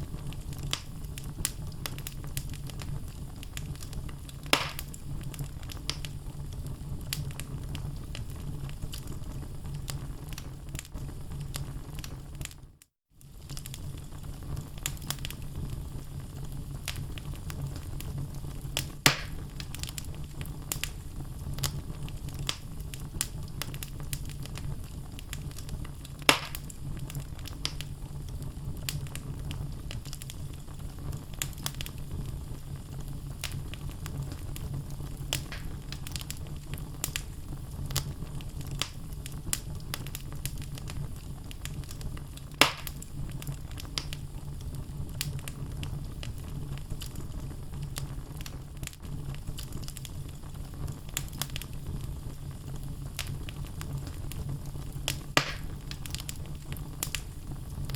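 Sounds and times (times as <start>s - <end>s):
loud fire pops: 0.0s - 12.6s, 13.2s - 57.9s
low rumble of flame: 0.0s - 57.9s
logs crackling and snapping: 0.3s - 6.2s, 13.2s - 15.4s, 18.8s - 21.0s, 21.6s - 27.9s, 31.2s - 44.2s, 47.9s - 52.0s, 52.7s - 57.9s.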